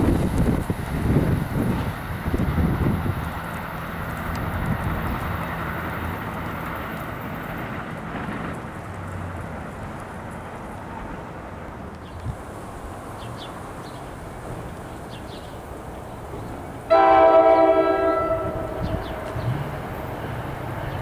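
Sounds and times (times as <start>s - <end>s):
wind noise on microphone: 0.0s - 5.6s, 18.0s - 21.0s
train rumbling: 0.0s - 21.0s.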